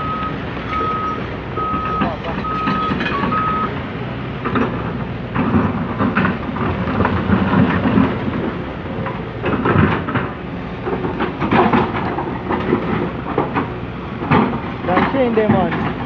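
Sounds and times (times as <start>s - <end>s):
diesel engine under load: 0.0s - 16.0s
excavator bucket scraping earth: 0.5s - 3.7s, 4.4s - 16.0s.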